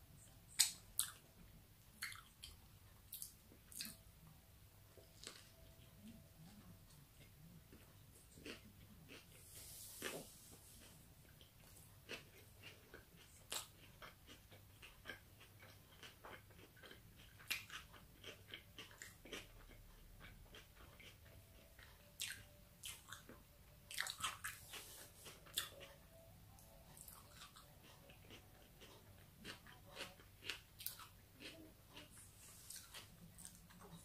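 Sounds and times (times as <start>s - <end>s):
chewing with wet mouth clicks: 0.5s - 1.2s, 2.0s - 4.0s, 11.2s - 34.0s.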